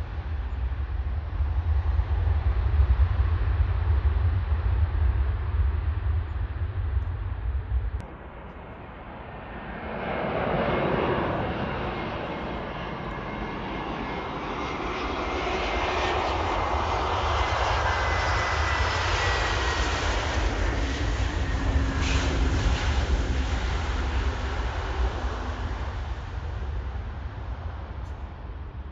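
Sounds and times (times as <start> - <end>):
low rumble: 0.0 - 8.9
jet airliner engine noise: 0.0 - 28.9.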